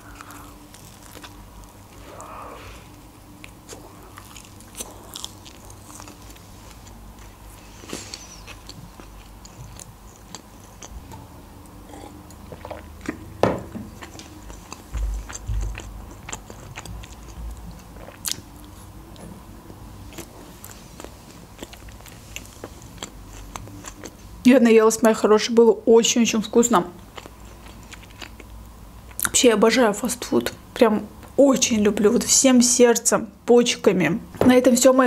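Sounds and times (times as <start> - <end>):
biting and chewing food: 0.0 - 2.0, 3.3 - 19.4, 20.0 - 24.3, 27.1 - 29.3.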